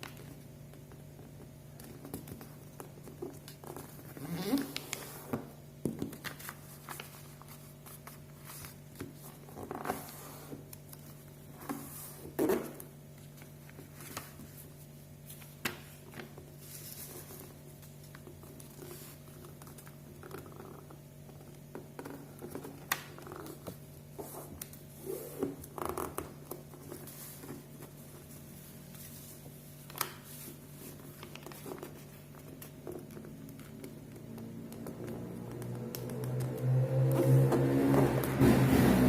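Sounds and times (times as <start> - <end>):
paper rustling and creasing: 0.0 - 38.2.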